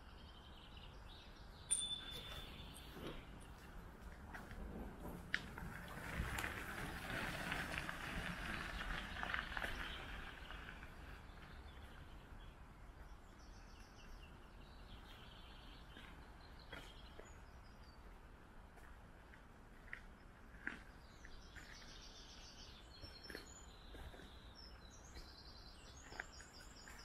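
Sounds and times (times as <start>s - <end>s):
birds chirping: 0.0s - 3.9s, 8.3s - 18.6s, 19.8s - 27.0s.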